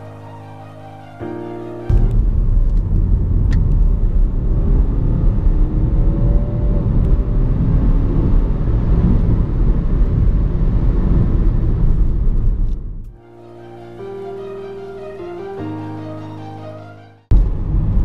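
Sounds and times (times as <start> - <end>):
diesel engine accelerating hard: 1.9 - 13.1.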